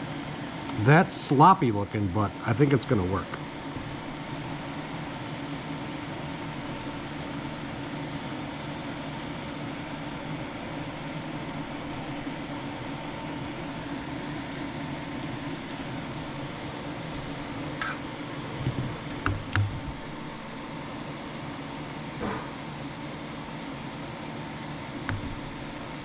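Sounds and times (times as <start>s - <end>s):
machine hum and hiss: 0.0s - 26.0s
small clicks and knocks: 18.6s - 20.3s, 25.1s - 25.5s.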